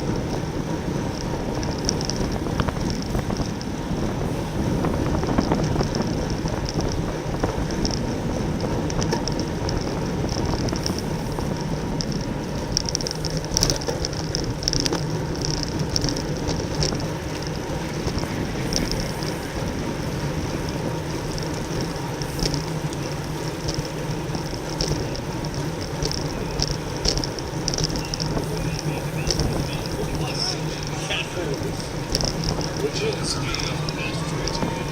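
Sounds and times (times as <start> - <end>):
wind and road noise from bicycle: 0.0 - 34.9
high flickering chatter: 16.7 - 34.9.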